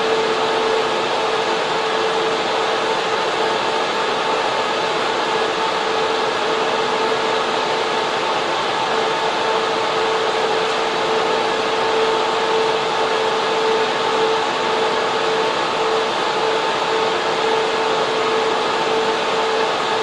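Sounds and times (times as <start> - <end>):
server cooling fans rushing: 0.0 - 20.0
steady two-pitch hum: 0.0 - 20.0.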